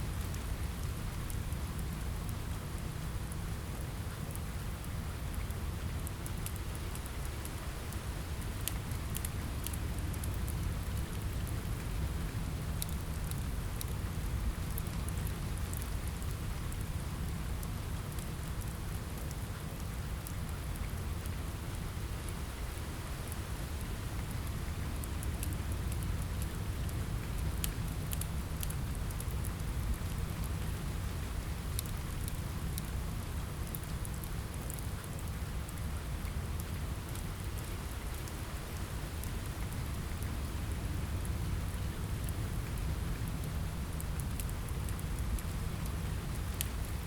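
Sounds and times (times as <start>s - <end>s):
rain on a window: 0.0s - 47.0s
fire crackling and popping: 0.1s - 47.0s.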